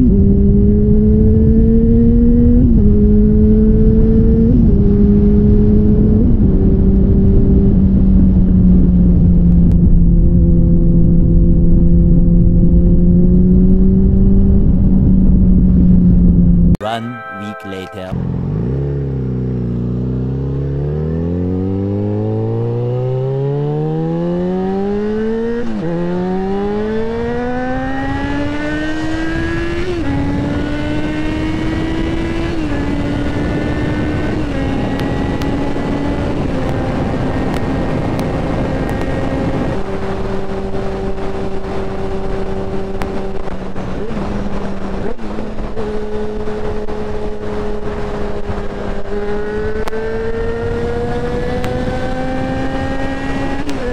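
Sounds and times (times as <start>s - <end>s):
motorcycle engine accelerating: 0.0s - 16.7s, 18.2s - 53.9s
wind noise: 0.0s - 16.7s, 28.1s - 53.9s.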